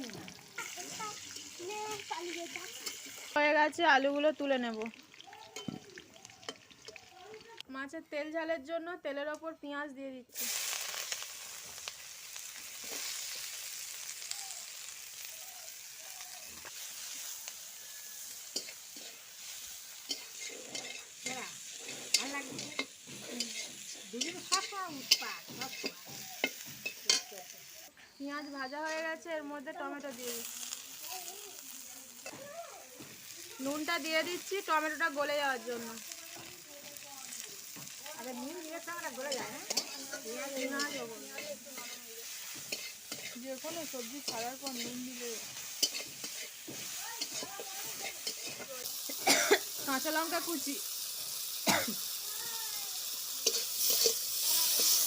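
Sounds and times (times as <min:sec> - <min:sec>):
onions sizzling in hot oil: 0:00.0 - 0:08.4, 0:10.3 - 0:55.0.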